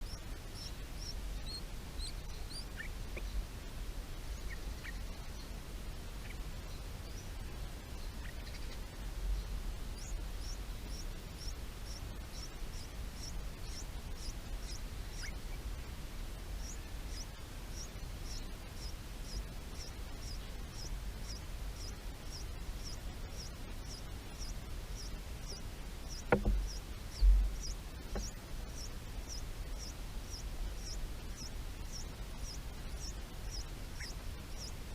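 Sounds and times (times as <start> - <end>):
small bird chirping: 0.0 - 3.5, 4.2 - 34.9
thumps: 26.3 - 28.4
low rumble: 26.4 - 28.3.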